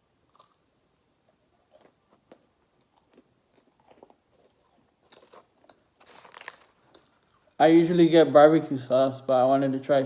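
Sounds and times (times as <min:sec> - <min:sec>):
faint chewing: 0:00.2 - 0:07.6.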